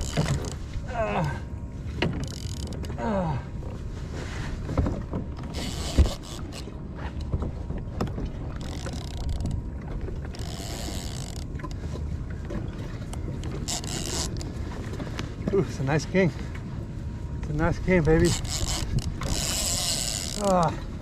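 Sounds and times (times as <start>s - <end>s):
fishing reel clicking: 10.4s - 11.4s, 18.2s - 20.5s.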